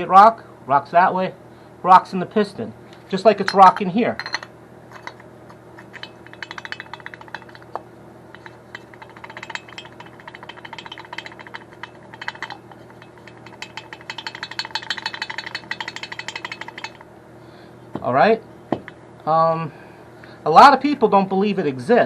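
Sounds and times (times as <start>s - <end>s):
piston clicking and clacking: 3.5s - 17.1s.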